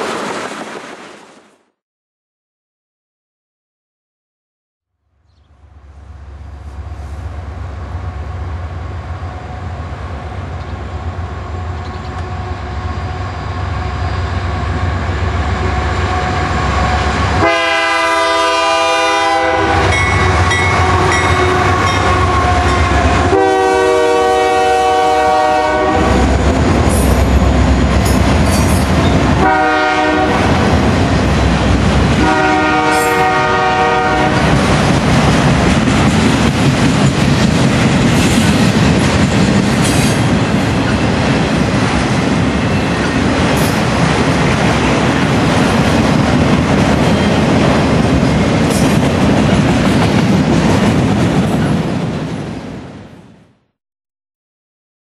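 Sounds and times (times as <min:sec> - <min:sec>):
diesel train engine rumble: 0:05.5 - 0:52.2
train air horn: 0:15.5 - 0:26.3, 0:29.4 - 0:30.7, 0:32.1 - 0:34.6
train wheels clickety-clack: 0:26.4 - 0:29.4, 0:34.4 - 0:52.2.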